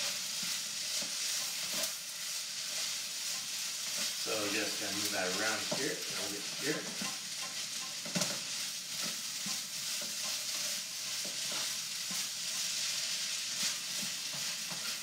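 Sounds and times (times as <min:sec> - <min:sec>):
spatula scraping and clattering: 0:00.0 - 0:02.0, 0:05.0 - 0:12.9, 0:13.5 - 0:15.0
food sizzling in a hot wok: 0:00.0 - 0:15.0.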